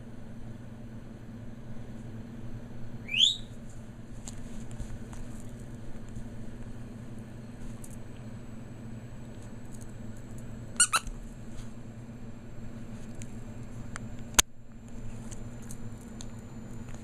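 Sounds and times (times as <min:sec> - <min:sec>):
steady low hum: 0:00.0 - 0:17.0
high squeaks: 0:10.8 - 0:11.1.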